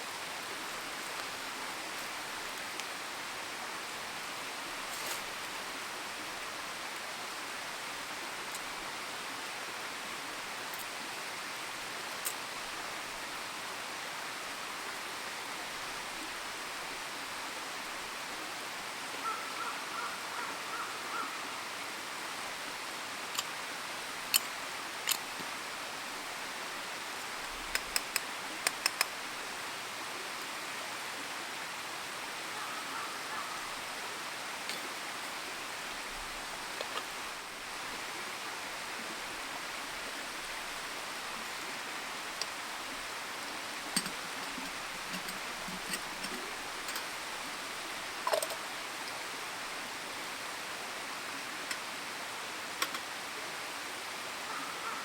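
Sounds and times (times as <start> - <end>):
steady rushing hiss: 0.0 - 55.0
campfire crackling: 27.1 - 29.6, 39.9 - 48.6.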